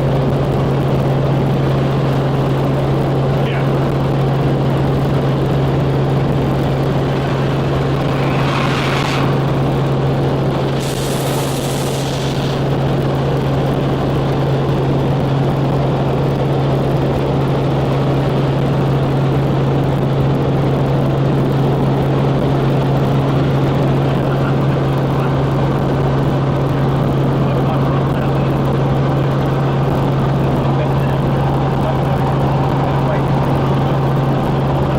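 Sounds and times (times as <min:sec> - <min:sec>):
helicopter droning: 0:00.0 - 0:34.9
brief hissing surges: 0:06.8 - 0:12.9.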